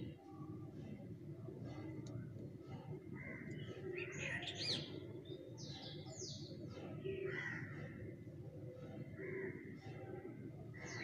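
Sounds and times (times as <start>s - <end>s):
birds chirping and whistling: 3.6s - 6.4s.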